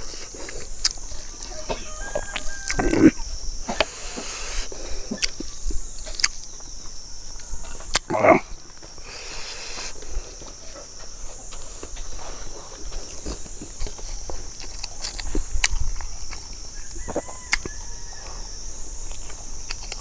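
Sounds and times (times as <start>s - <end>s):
throaty mouth sounds: 2.7s - 5.4s, 7.9s - 8.6s
chewing and lip smacking: 12.4s - 18.4s.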